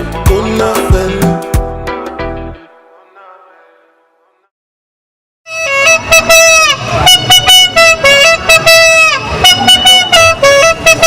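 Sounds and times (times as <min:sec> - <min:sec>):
horn blasts: 0:05.5 - 0:11.0.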